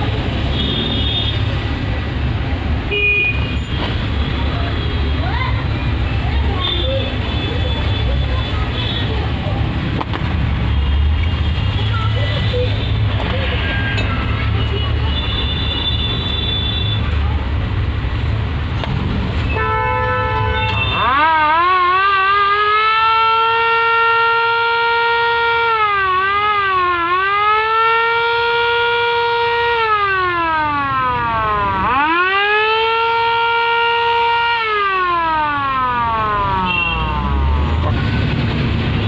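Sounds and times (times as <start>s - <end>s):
motor-driven siren wailing: 20.8s - 37.9s.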